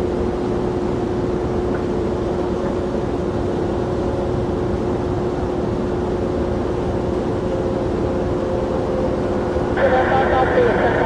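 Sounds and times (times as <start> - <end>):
jet engines rumbling: 7.5 - 11.0.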